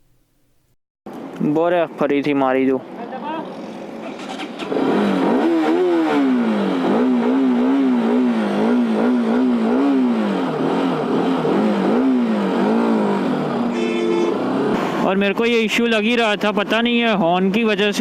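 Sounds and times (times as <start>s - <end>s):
motorcycle engine revving: 3.9s - 15.0s.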